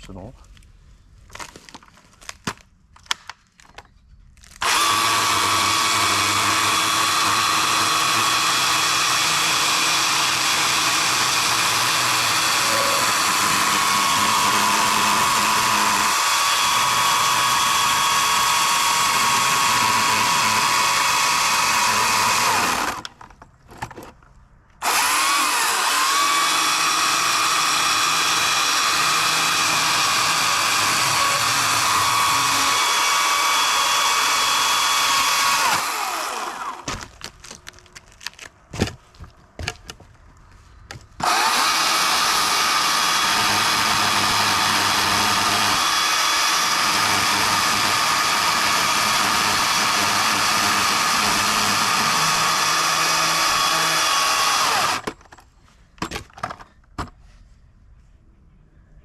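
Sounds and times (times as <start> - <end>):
electric chainsaw whining: 4.6 - 23.1, 24.8 - 36.9, 41.2 - 55.2.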